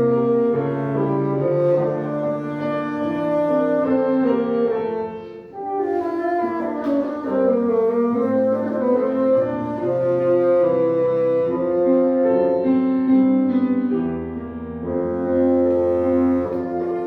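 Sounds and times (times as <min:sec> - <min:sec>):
bassoon melody: 0:00.0 - 0:17.0
piano accompaniment: 0:00.0 - 0:17.0.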